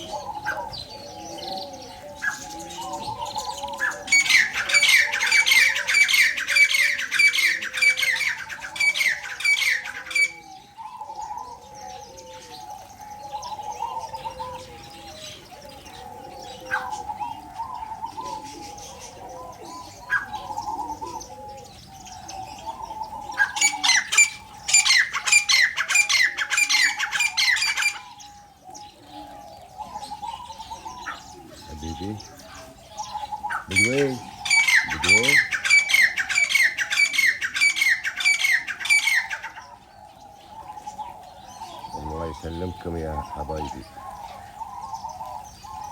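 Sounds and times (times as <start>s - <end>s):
harsh chattering bird calls: 0.0s - 45.9s
soft low bird calls: 0.0s - 45.9s.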